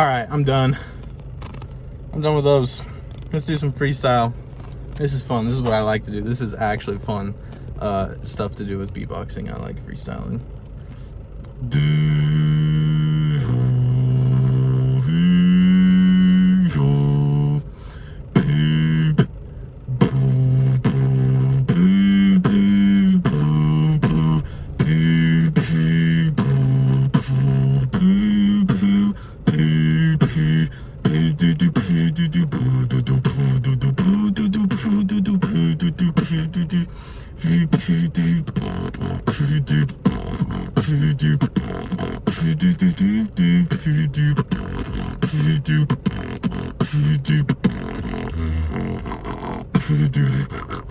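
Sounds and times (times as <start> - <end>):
beatboxing: 11.5 - 50.9.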